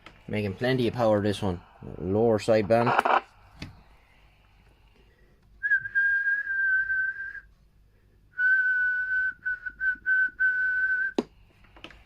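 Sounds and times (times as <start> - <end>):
person whistling into a microphone: 5.6 - 7.5, 8.4 - 11.2.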